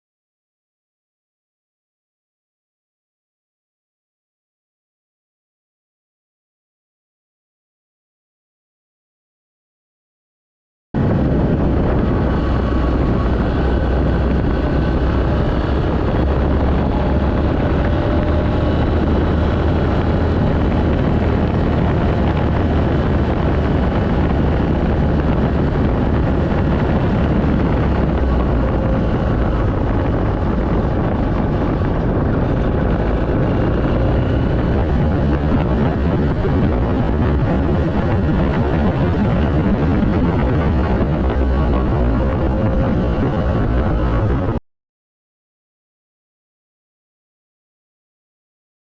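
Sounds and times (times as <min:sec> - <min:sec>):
motorcycle engine running: 0:11.0 - 0:44.6
wind on microphone: 0:11.0 - 0:44.6.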